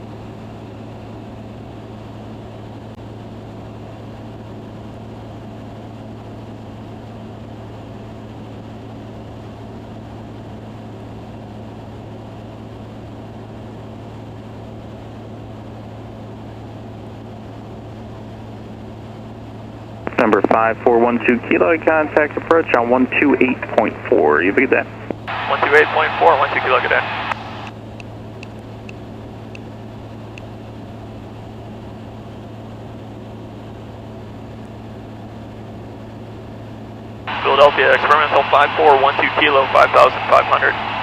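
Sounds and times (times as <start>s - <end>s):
aircraft engine and propeller droning: 0.0s - 41.0s.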